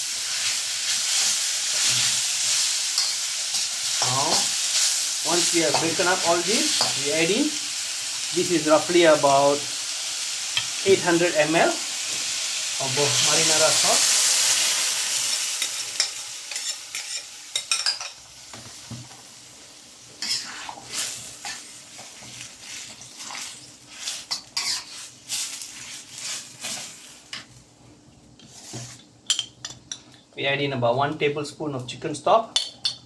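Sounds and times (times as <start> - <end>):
sauce sizzling in a wok: 0.0 - 27.7
stirring scrapes and clicks in wok: 0.2 - 3.7, 20.2 - 27.5.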